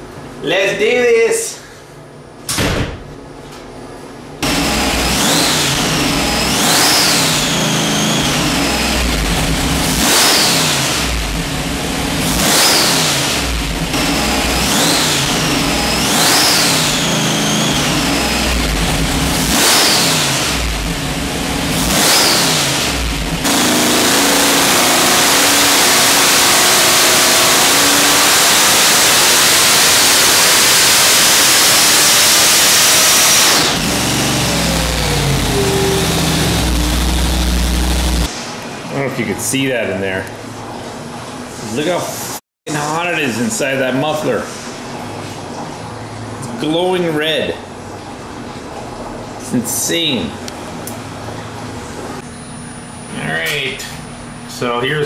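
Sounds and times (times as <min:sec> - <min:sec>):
supercharged engine revving: 0:04.4 - 0:38.3
supercharger whine: 0:04.4 - 0:38.6, 0:49.7 - 0:55.0.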